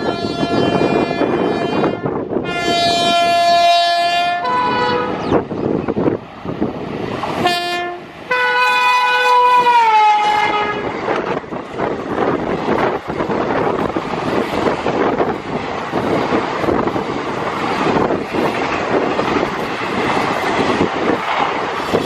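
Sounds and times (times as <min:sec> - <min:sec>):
locomotive air horn blasts: 0:00.0 - 0:05.3, 0:07.4 - 0:11.0
train rumble and rattle: 0:00.0 - 0:22.0.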